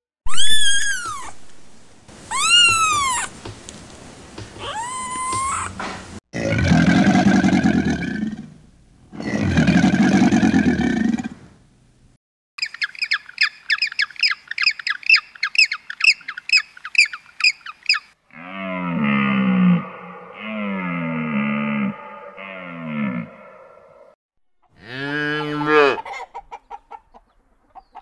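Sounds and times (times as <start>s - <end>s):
penguin chick begging chirps: 0.3s - 1.4s, 2.2s - 3.3s, 4.6s - 5.8s, 12.6s - 18.1s
crocodile growling: 6.4s - 11.4s, 18.3s - 24.2s
low moaning call: 18.3s - 24.2s.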